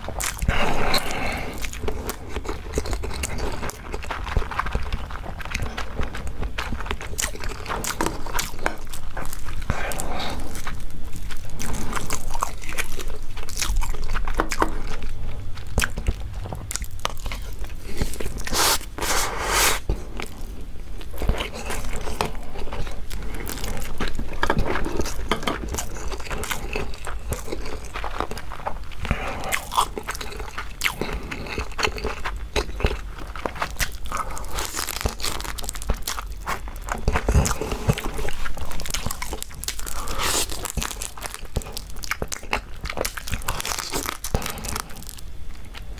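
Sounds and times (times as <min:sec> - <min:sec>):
wet chewing: 0:00.0 - 0:45.9
crab shells crunching: 0:21.0 - 0:45.9.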